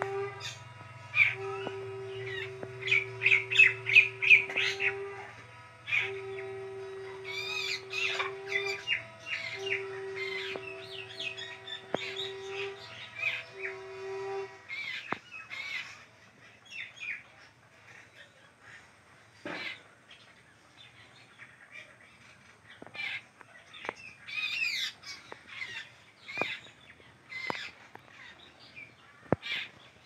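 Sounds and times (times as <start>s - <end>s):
birds chirping and squawking: 0.0s - 17.2s, 20.9s - 30.0s
steady humming tone: 0.0s - 18.0s.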